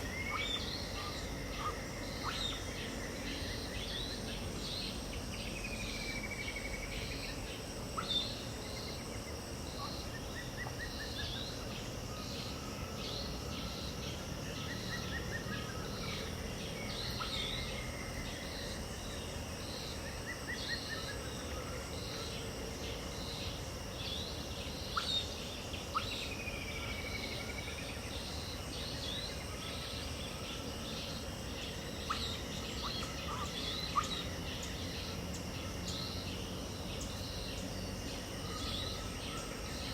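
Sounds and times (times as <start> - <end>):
birds chirping: 0.0 - 39.9
insect hum: 0.0 - 39.9
bird trills: 24.8 - 29.3, 31.0 - 36.3.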